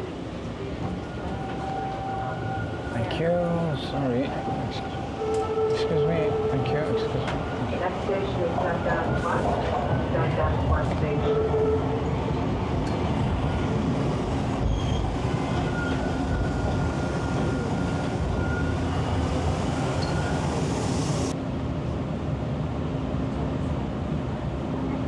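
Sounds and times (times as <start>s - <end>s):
subway train rumble and rail noise: 0.0s - 25.0s.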